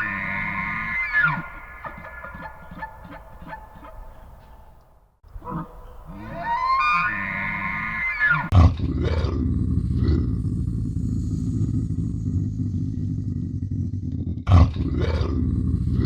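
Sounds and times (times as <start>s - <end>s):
animal's drawn-out pitched call: 0.0s - 4.2s, 5.4s - 8.6s
low rough growl: 8.4s - 16.0s.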